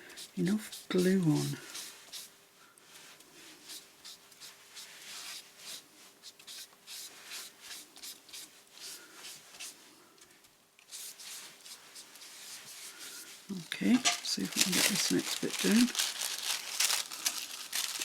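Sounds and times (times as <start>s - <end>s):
paintbrush swishing on paper: 0.0s - 2.3s, 2.9s - 9.9s, 10.9s - 13.5s.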